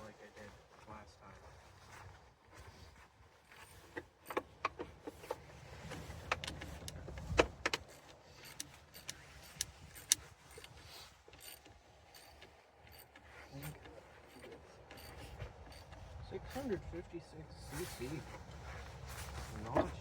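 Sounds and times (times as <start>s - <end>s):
metallic clicks of hand tools: 6.2s - 16.0s.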